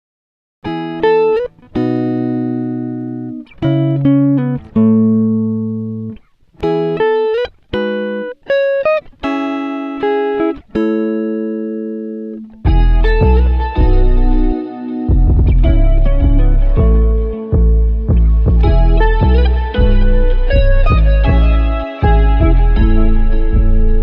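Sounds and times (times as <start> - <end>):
plucked guitar: 0.6 - 24.0
band with bass: 12.7 - 24.0.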